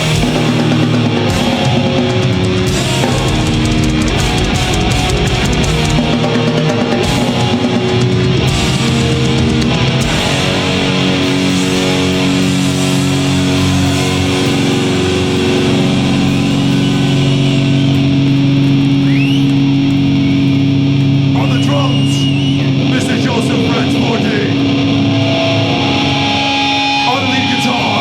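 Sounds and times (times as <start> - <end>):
drum hits: 0.0 - 18.7
heavy metal band playing live: 0.0 - 28.0
held guitar chords ringing: 0.0 - 28.0.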